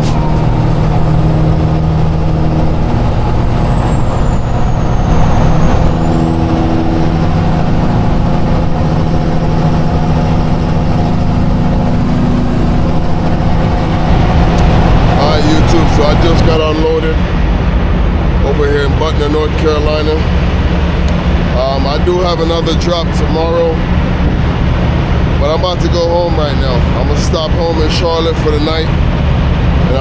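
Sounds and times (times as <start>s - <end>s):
faint high whistle: 0.0s - 7.3s
truck diesel engine running: 0.0s - 30.0s.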